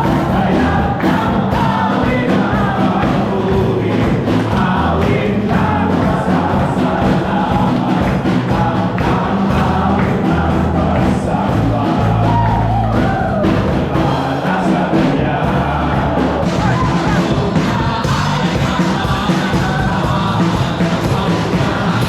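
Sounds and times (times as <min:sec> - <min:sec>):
band playing upbeat praise song: 0:00.0 - 0:22.0
congregation singing: 0:00.0 - 0:22.0
crowd shouting and whooping: 0:11.8 - 0:14.0, 0:15.4 - 0:20.2.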